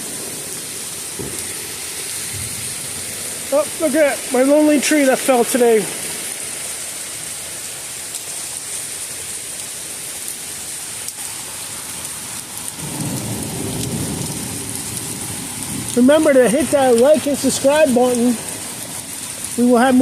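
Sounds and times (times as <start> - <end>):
thunder rumbling: 0.0 - 4.3, 12.8 - 19.6
heavy rain pouring: 0.0 - 20.0.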